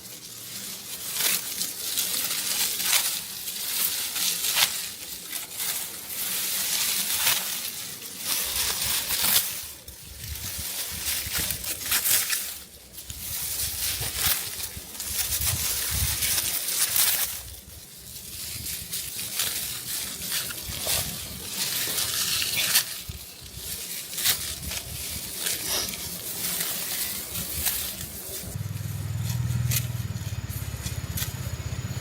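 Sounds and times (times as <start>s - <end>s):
dry stalks rustling and crunching: 0.0s - 32.0s.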